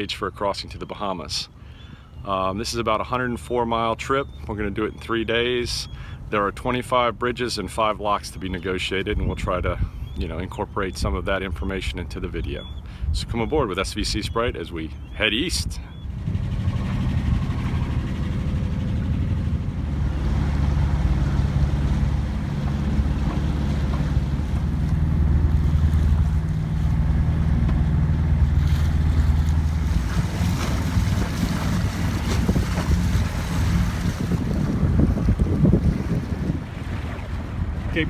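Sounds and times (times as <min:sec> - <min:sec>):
boat engine running: 0:00.0 - 0:38.0
wind buffeting microphone: 0:08.2 - 0:38.0
water rushing past hull: 0:14.7 - 0:38.0.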